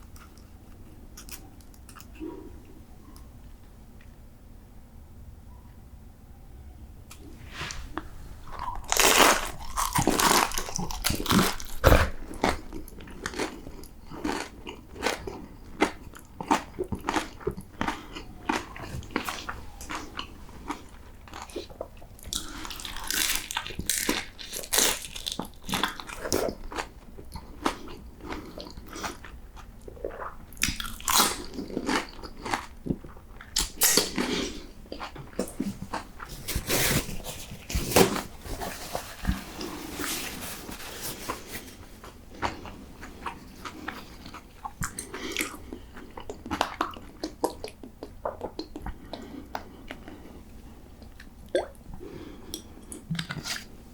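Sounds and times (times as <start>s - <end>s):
crunchy chewing: 7.9s - 40.2s, 41.0s - 50.3s.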